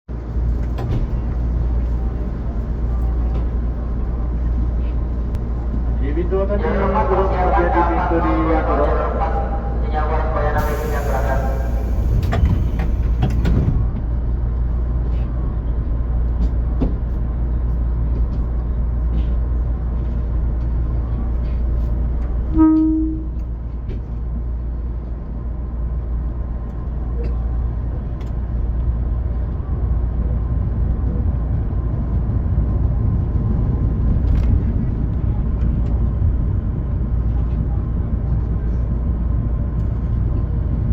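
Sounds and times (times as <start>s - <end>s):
electric train rumbling: 0.1s - 40.9s
train horn toot: 22.5s - 23.4s.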